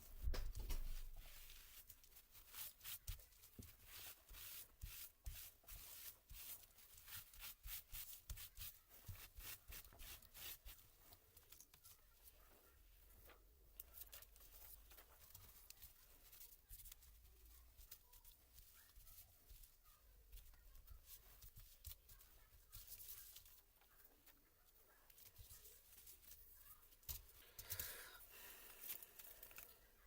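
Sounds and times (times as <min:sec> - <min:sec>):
soft rustle: 0:00.0 - 0:30.0.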